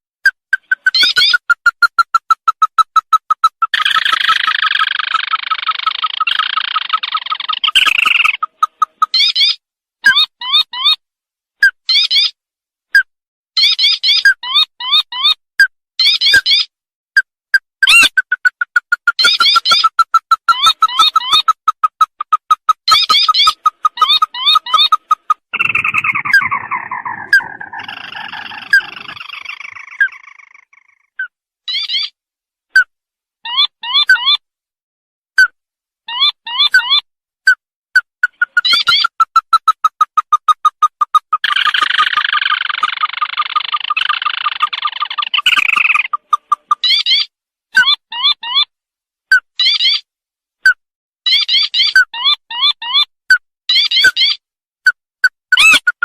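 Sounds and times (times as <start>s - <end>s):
crake churring trill: 0.5s - 9.4s, 17.8s - 31.2s, 38.2s - 47.0s
bird piping notes: 0.5s - 10.6s, 17.8s - 32.0s, 38.2s - 47.2s
harsh bird call burst: 22.9s - 30.8s.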